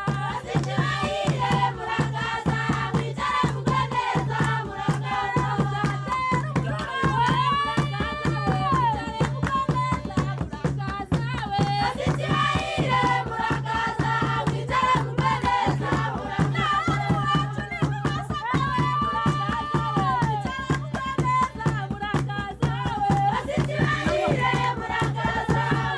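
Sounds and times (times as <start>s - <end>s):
shakers and percussion beat: 0.0s - 25.9s
voices singing folk song: 0.0s - 25.9s.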